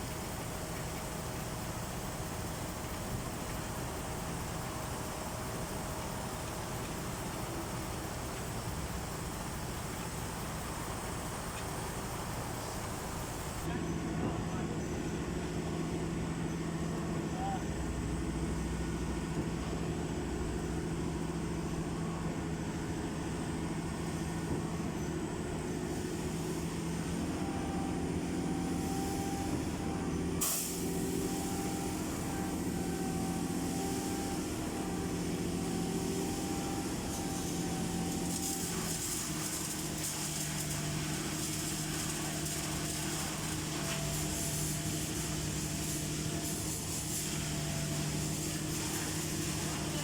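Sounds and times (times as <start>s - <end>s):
diesel engine running: 0.0s - 13.7s, 14.4s - 50.0s
hiss: 0.0s - 13.7s, 25.9s - 50.0s.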